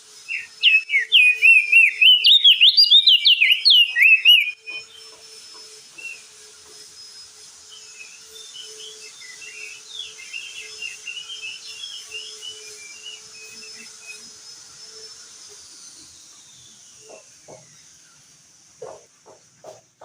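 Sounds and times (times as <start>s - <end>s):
thin high whine: 0.0s - 18.3s
bird singing high chirps: 0.3s - 5.2s, 7.7s - 15.1s.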